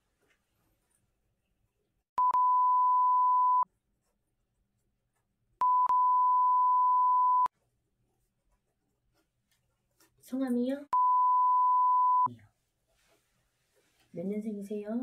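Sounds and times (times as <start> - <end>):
censor bleep: 2.2 - 3.6, 5.6 - 7.5, 11.0 - 12.3.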